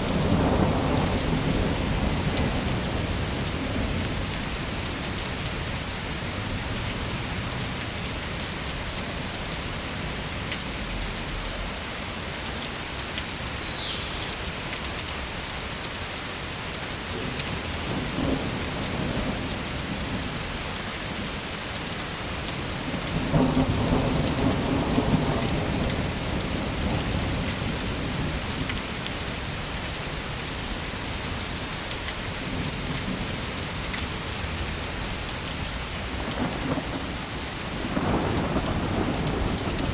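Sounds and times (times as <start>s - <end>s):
thunder rumbling: 0.0s - 4.8s, 22.7s - 28.8s, 32.4s - 39.9s
heavy rain hissing: 0.0s - 8.3s, 13.3s - 15.8s, 16.4s - 39.9s.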